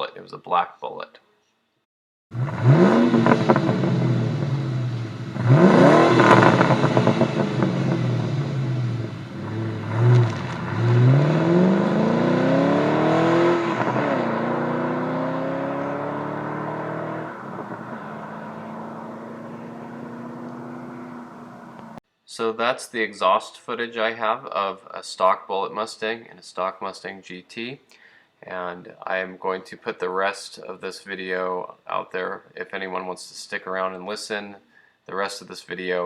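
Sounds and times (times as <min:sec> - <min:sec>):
car engine revving: 0:02.3 - 0:22.0
car pulling away: 0:02.3 - 0:22.0.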